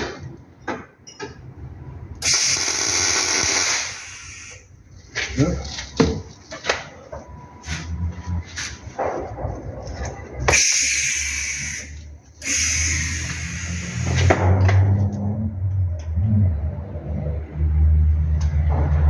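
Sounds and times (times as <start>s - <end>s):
welder arc crackling and hissing: 2.2s - 4.7s, 10.5s - 14.3s.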